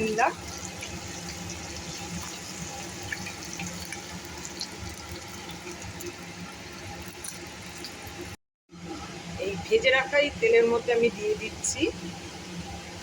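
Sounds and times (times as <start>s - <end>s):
hot oil sizzling in a frying pan: 0.0s - 8.4s.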